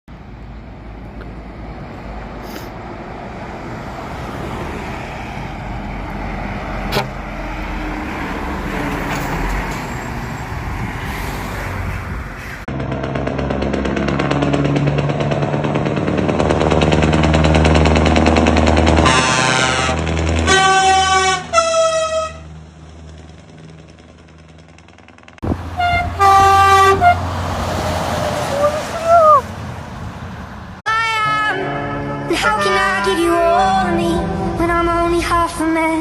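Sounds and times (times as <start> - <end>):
truck engine: 0.1 - 30.9, 31.8 - 36.0
deep even engine note: 12.7 - 27.7.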